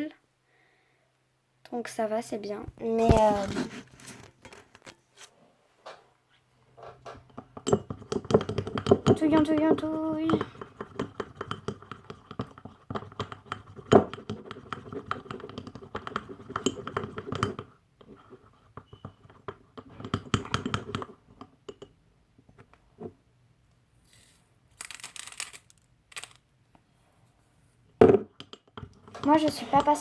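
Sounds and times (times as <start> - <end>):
spoon stirring and scraping bowl: 6.9 - 22.0, 28.2 - 30.0.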